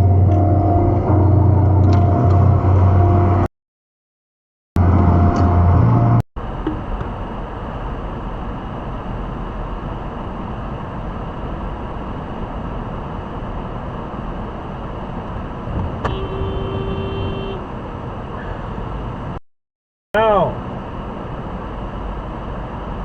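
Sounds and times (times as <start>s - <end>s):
car road and engine noise: 0.0s - 3.5s, 4.8s - 19.4s, 20.2s - 23.0s
steady pitched tone: 0.0s - 3.5s.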